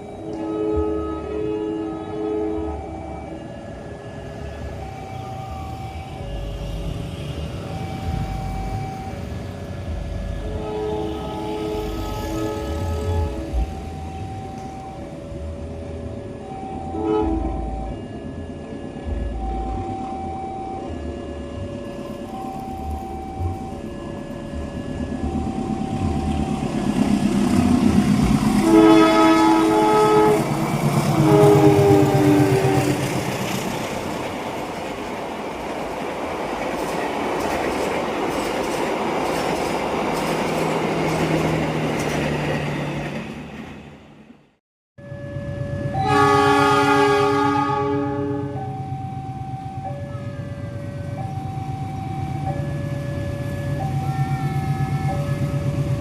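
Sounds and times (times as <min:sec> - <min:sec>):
train rumbling past: 0:00.0 - 0:56.0
train horn blast: 0:00.1 - 0:03.2, 0:10.4 - 0:13.8, 0:16.9 - 0:17.8, 0:28.3 - 0:33.3, 0:45.9 - 0:48.7
two-pitch alternating tones: 0:11.7 - 0:33.6
train wheels clattering on rails: 0:30.3 - 0:43.9.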